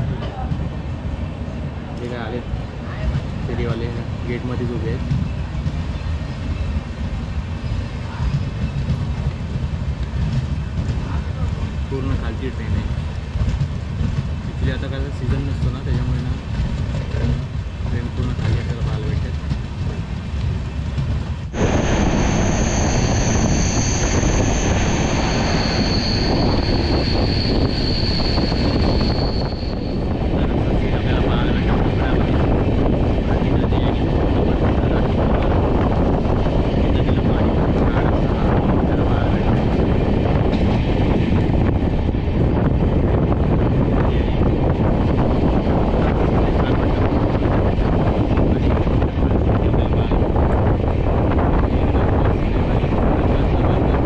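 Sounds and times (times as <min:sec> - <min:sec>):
train wheels rumbling on rails: 0:00.0 - 0:54.0
high squealing tones: 0:21.6 - 0:30.1.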